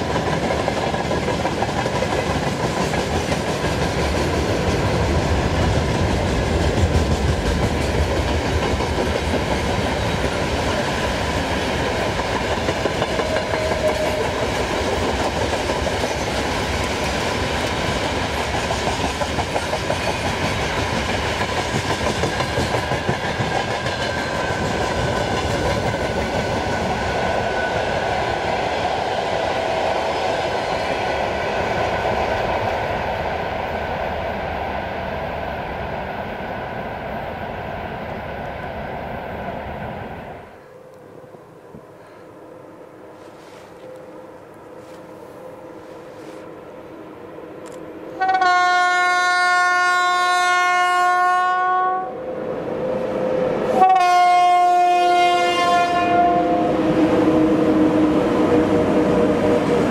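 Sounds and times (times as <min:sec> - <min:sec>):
steel wheels clattering on rails: 0:00.0 - 0:27.0.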